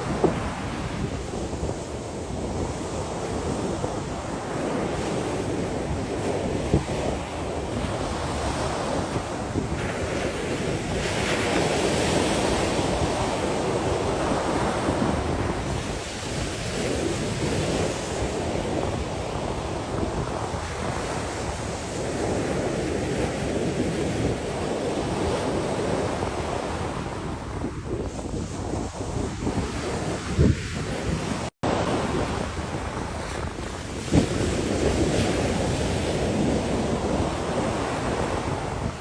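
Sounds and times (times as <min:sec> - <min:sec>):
sea waves washing onto shore: 0:00.0 - 0:39.0
wind on microphone: 0:00.0 - 0:39.0.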